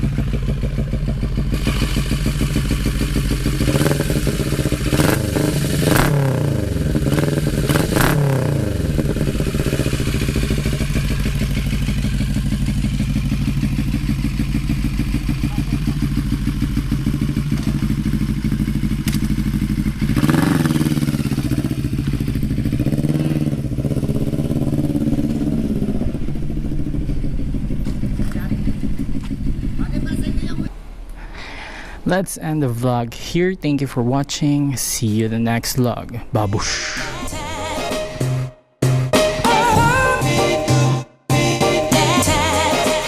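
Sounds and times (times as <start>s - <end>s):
motorcycle engine idling and revving: 0.0s - 31.1s.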